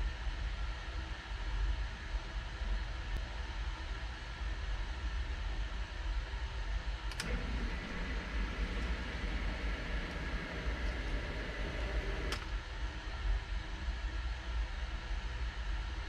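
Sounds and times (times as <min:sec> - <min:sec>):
pump switch click: 0:07.1 - 0:12.5
sump pump running: 0:07.1 - 0:12.5
steady low hum: 0:07.1 - 0:12.6.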